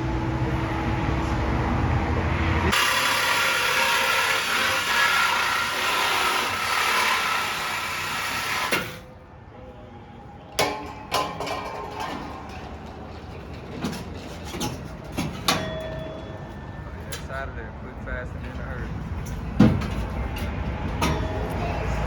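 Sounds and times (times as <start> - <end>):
power tool cutting with harsh hiss: 2.7 - 9.0.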